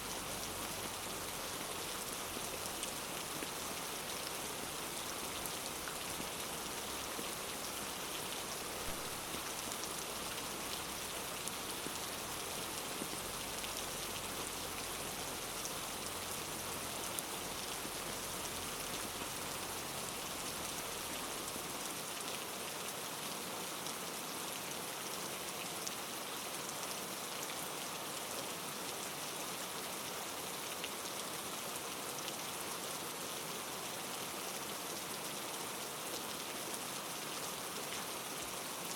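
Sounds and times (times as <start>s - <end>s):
rain hissing: 8.8s - 9.9s.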